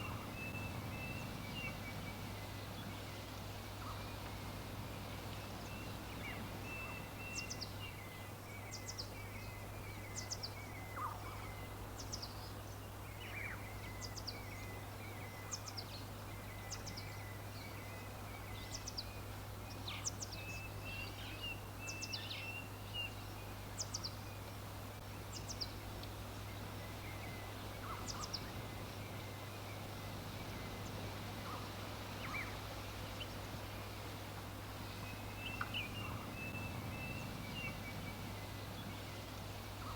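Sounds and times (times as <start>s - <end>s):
background hiss: 0.0s - 39.9s
songbirds chirping: 0.0s - 39.9s.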